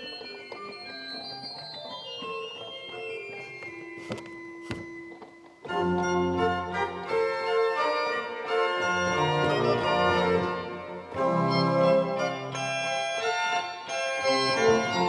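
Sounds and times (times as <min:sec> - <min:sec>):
pipe organ playing: 0:05.6 - 0:15.0.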